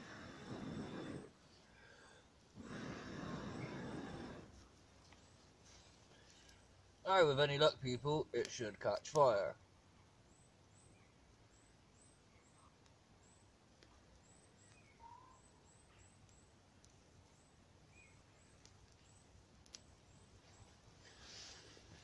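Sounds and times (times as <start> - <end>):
low hiss: 0.0 - 22.0
faint ticks: 4.5 - 6.7, 12.5 - 15.1, 15.7 - 21.2
faint bird chirps: 10.0 - 13.5, 14.1 - 16.6, 17.2 - 21.6.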